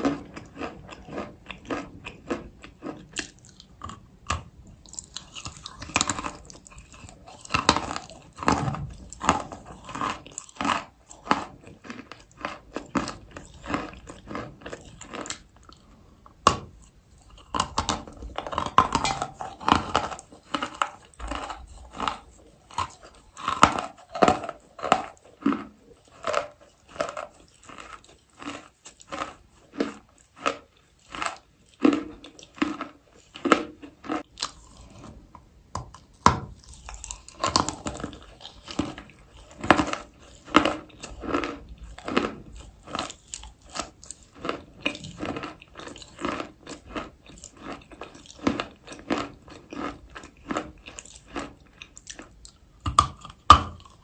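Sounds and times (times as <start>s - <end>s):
chewing chalk crunching: 0.0s - 54.0s.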